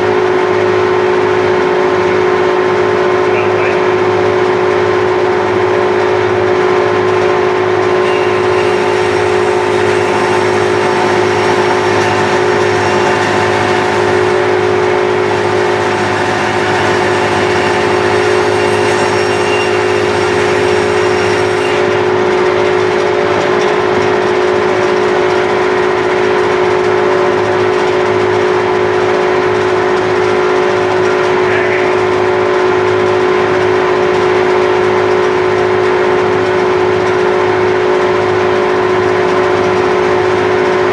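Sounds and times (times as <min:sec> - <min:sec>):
bandsaw cutting wood: 0:07.8 - 0:25.3.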